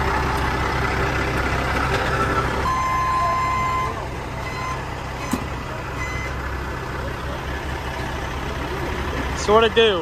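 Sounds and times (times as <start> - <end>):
diesel truck engine idling: 0.0 - 10.0
beep tone: 2.6 - 5.4, 6.0 - 6.4.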